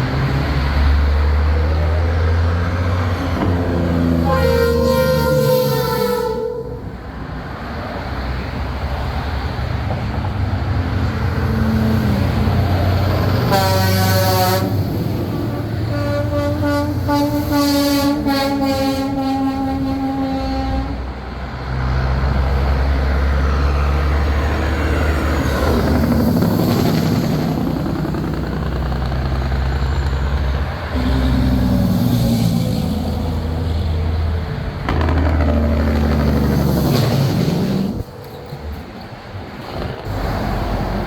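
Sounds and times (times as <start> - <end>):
trucks driving past: 0.0 - 41.0
air horn: 4.1 - 6.9, 13.5 - 14.8, 15.4 - 21.1, 31.0 - 31.7.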